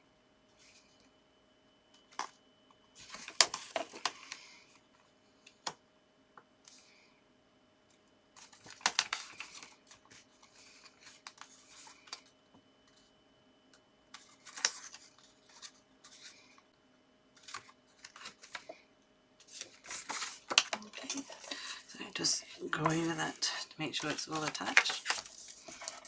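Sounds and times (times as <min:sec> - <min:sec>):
paper rustling: 0:03.0 - 0:04.5, 0:08.4 - 0:13.1, 0:14.1 - 0:16.6, 0:17.4 - 0:18.8, 0:19.4 - 0:26.0.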